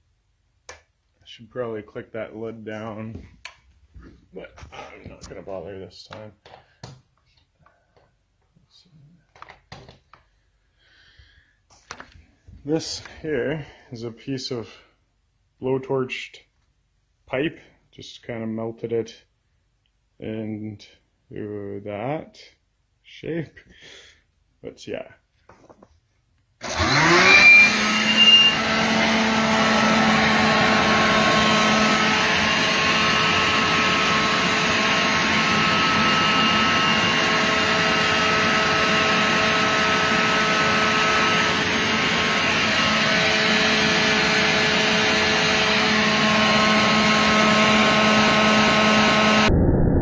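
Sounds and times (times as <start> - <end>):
shop vac motor whining: 26.6 - 49.5.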